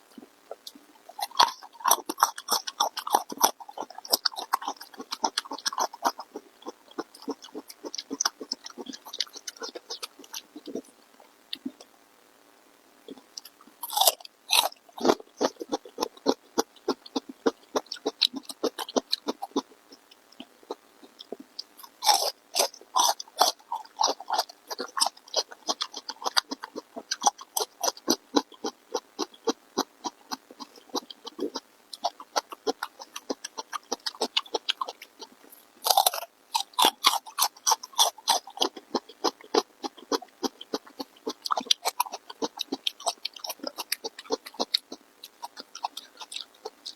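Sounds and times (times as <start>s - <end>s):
person chewing food: 0.0s - 11.9s, 13.1s - 46.9s.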